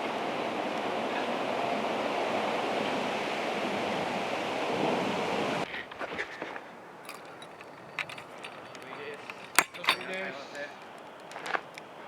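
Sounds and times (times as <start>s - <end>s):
faint clicks: 7.1s - 11.9s.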